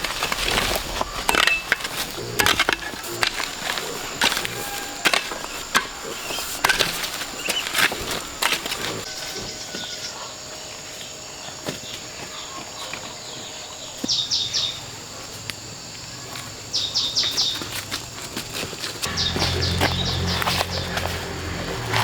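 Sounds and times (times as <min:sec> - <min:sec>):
high-pitched insect drone: 0:19.0 - 0:22.0.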